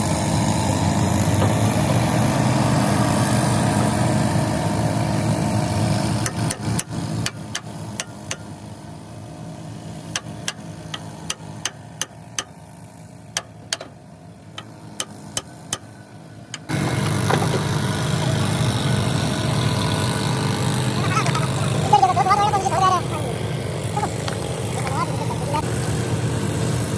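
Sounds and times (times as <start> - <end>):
engine running: 0.0 - 26.9
sharp irregular knocks: 13.4 - 14.0.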